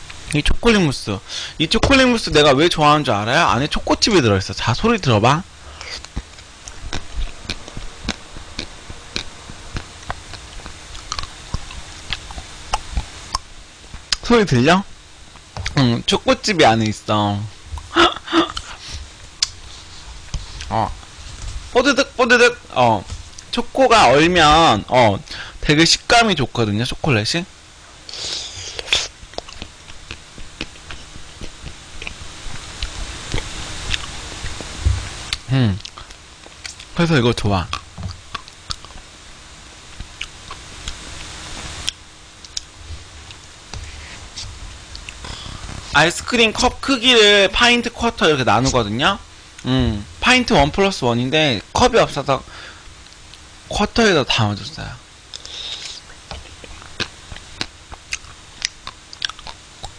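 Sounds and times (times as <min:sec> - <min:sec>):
chewing crunchy ice cream: 0:05.8 - 0:13.5, 0:28.7 - 0:36.9, 0:37.7 - 0:39.1, 0:55.3 - 0:59.9.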